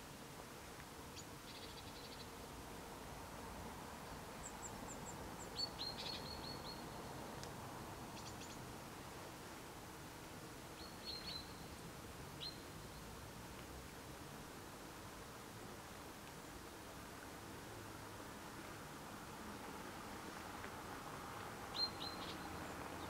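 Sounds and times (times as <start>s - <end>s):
faint outdoor background noise: 0.0s - 23.0s
small songbirds chirping: 1.1s - 2.4s, 3.9s - 7.2s, 8.1s - 8.7s, 10.8s - 13.2s, 21.6s - 23.0s.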